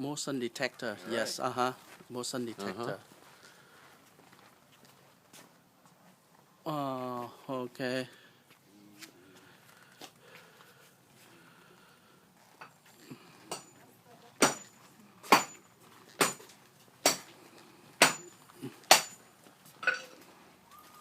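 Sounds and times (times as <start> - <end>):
hammer driving nail into wood: 18.0 - 18.3, 18.9 - 19.2.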